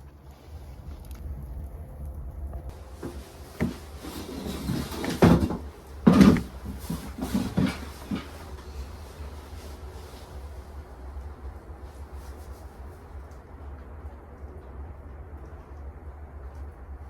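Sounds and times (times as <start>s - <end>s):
wooden knocks and clunks: 3.0s - 8.6s.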